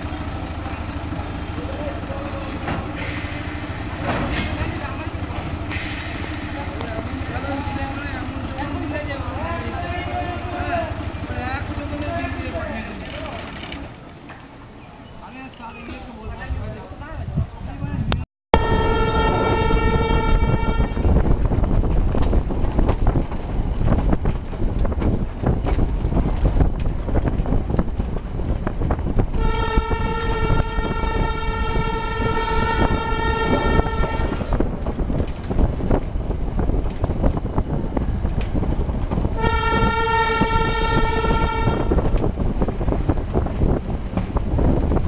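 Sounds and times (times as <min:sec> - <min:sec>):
train carriage rumbling and rattling: 0:00.0 - 0:45.0
train horn blasts: 0:18.6 - 0:21.2, 0:29.3 - 0:34.6, 0:39.3 - 0:42.1.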